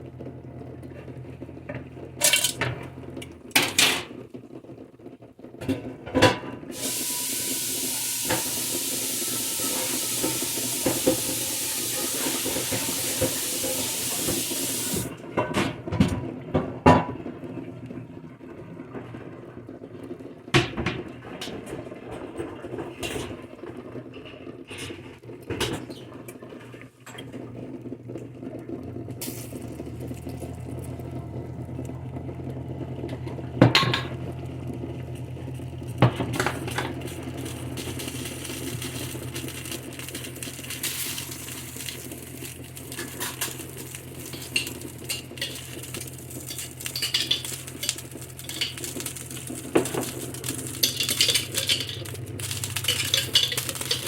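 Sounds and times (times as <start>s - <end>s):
kitchen tap running: 1.5s - 4.1s, 6.2s - 15.5s, 28.7s - 32.2s, 32.9s - 34.4s, 35.5s - 54.0s
dishes and utensils clinking: 42.9s - 54.0s.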